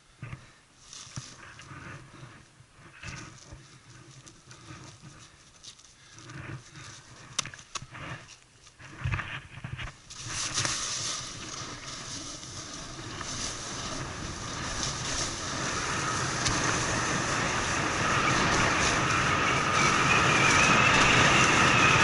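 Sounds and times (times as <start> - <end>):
snowboard scraping over snow: 0.9 - 5.3, 7.9 - 22.0
wind rushing on microphone: 8.8 - 22.0.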